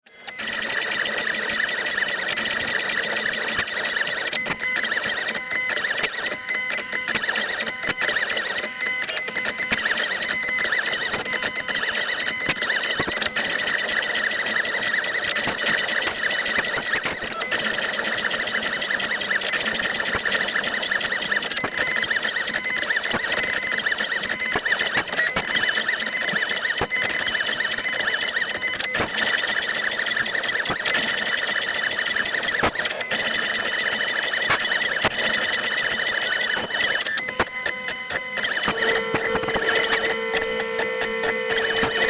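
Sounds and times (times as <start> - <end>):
motors whirring and ticking: 0.1 - 42.0
spindle whine: 38.6 - 42.0.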